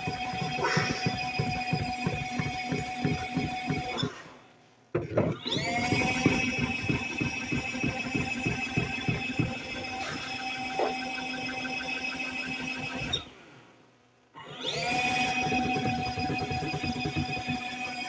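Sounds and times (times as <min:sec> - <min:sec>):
uneven knocking: 0:00.0 - 0:04.0, 0:04.9 - 0:09.8
washing machine motor whining: 0:00.0 - 0:04.2, 0:05.0 - 0:13.4, 0:14.4 - 0:18.0.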